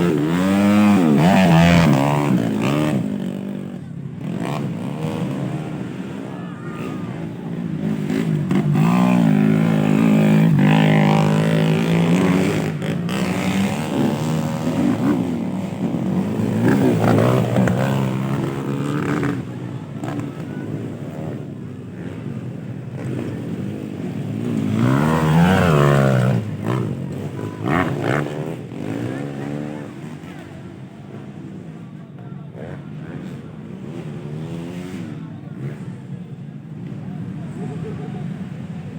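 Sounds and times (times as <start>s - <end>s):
motorbike passing close: 0.0s - 31.7s
motocross bikes revving: 0.0s - 38.9s.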